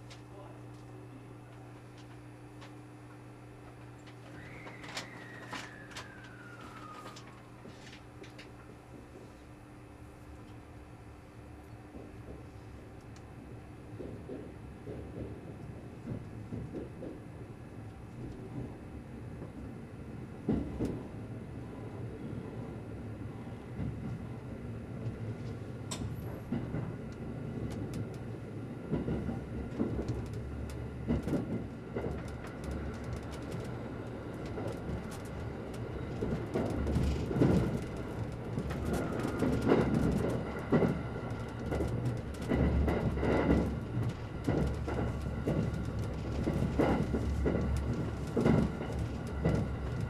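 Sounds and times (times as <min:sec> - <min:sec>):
train rumble inside carriage: 0:00.0 - 0:50.0
wheels clacking over rail joints: 0:28.9 - 0:50.0.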